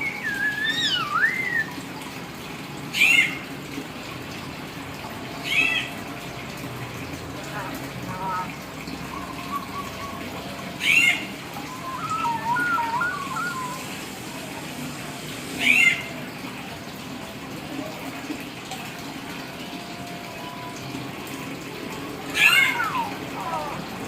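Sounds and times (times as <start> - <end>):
bird whistled calls: 0.0 - 1.8, 9.1 - 13.9.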